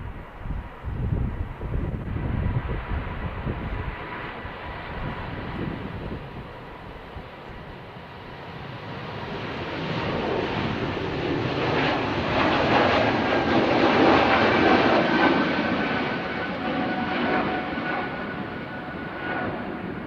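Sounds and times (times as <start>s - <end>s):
jet engines rushing and whining: 0.0s - 20.0s.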